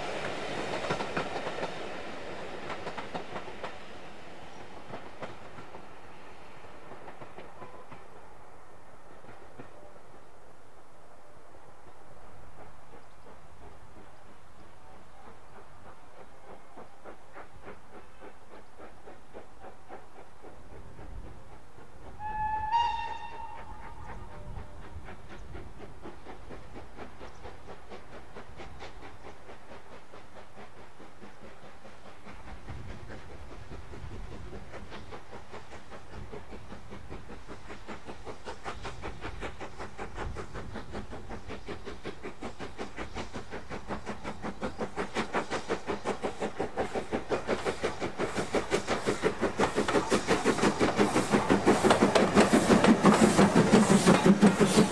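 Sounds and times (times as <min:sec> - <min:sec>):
steam locomotive exhaust beats: 0:00.0 - 0:10.2, 0:11.9 - 0:54.9
steam whistle toot: 0:22.2 - 0:24.8.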